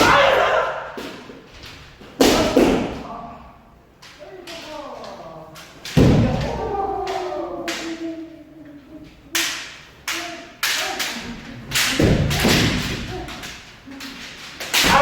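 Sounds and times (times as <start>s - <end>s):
bamboo sword strikes: 9.4s - 13.5s, 14.6s - 15.0s.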